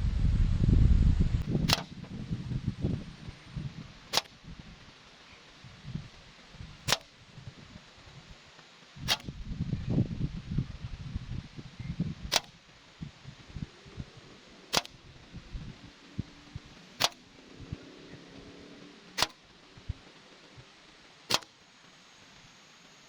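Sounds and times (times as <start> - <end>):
wind buffeting microphone: 0.0 - 5.0, 5.6 - 8.3, 9.0 - 18.5
slingshot cracks: 1.4 - 2.0, 4.1 - 4.5, 6.9 - 7.2, 9.0 - 9.4, 12.3 - 12.6, 14.7 - 15.1, 17.0 - 17.4, 19.2 - 19.5, 21.3 - 21.6.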